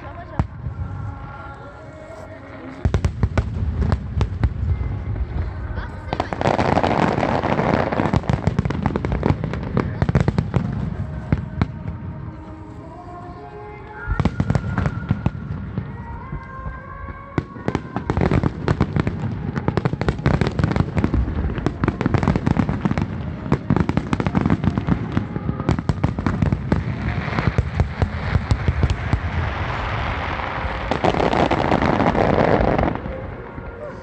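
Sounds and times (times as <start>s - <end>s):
fireworks crackling and popping: 0.0s - 34.0s.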